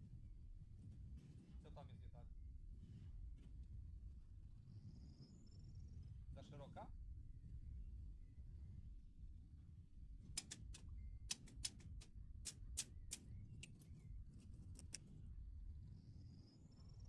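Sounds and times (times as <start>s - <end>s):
faint low rumble: 0.0s - 11.3s
light sharp clicks: 10.4s - 13.8s, 14.6s - 15.0s.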